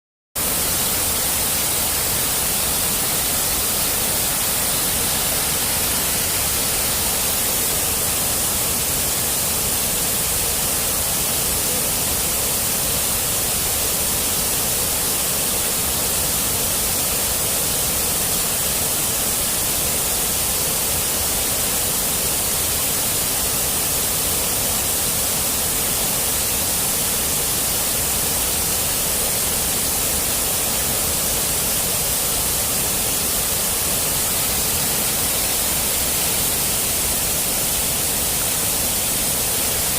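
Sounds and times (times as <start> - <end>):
waterfall rushing: 0.4 - 39.9.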